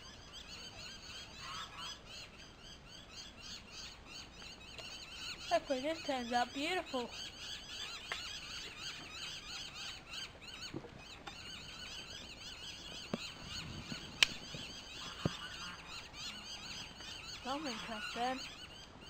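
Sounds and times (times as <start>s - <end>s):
high-pitched chirping: 2.9s - 19.0s
campfire wood popping: 10.6s - 12.2s, 12.9s - 15.5s.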